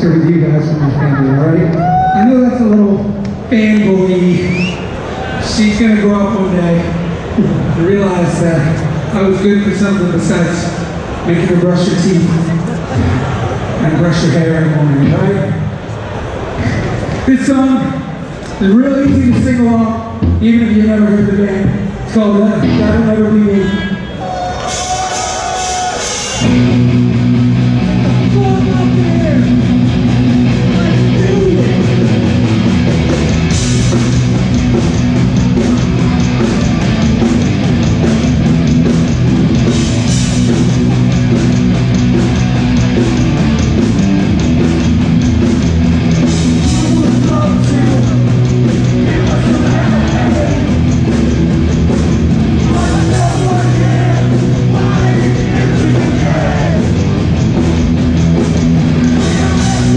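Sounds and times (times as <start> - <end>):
hardcore punk band playing: 19.0 - 59.9.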